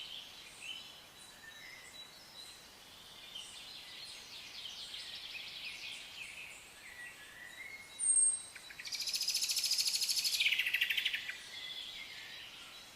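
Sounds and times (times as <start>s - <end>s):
songbirds chirping: 0.0s - 12.9s.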